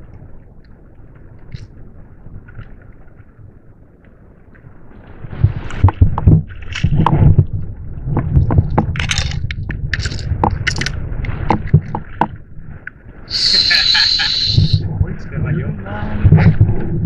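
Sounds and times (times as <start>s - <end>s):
low rumble: 0.0s - 17.0s
water sloshing: 0.6s - 16.9s
knocks and scrapes on plastic kayak: 11.3s - 12.4s.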